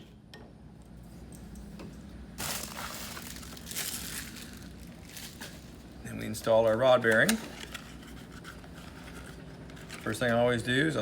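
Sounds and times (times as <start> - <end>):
low shop hum: 0.0 - 11.0
crinkling and rustling: 2.4 - 5.9, 6.7 - 10.3.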